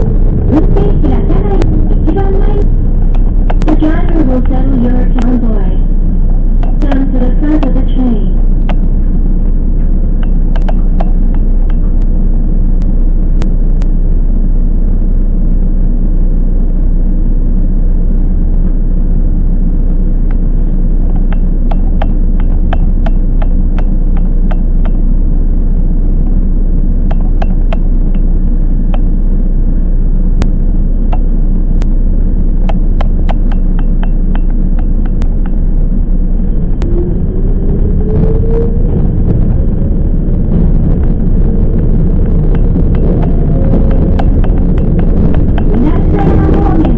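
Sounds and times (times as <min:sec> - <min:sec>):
rising electric motor whine: 0:00.0 - 0:06.8, 0:08.1 - 0:46.9
train interior rumble: 0:00.0 - 0:46.9
sharp clicks: 0:03.1 - 0:05.4, 0:10.2 - 0:12.1, 0:21.0 - 0:25.0, 0:27.0 - 0:28.3, 0:32.6 - 0:35.8.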